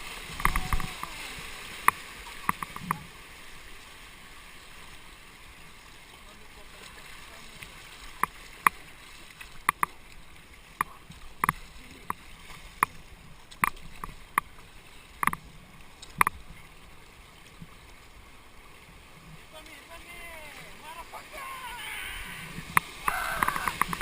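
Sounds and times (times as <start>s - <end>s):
river water rushing: 0.0s - 24.0s
kayak paddles knocking on boat: 22.6s - 24.0s.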